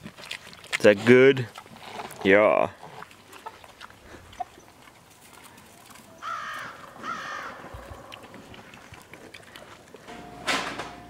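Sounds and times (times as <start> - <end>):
faint outdoor background: 0.0 - 11.0
harsh bird calls: 6.2 - 8.3.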